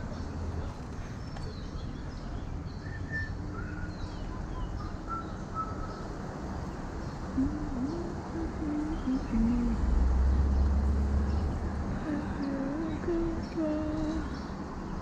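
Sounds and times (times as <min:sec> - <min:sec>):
birds chirping: 0:00.0 - 0:15.0
low cooing: 0:07.4 - 0:10.0.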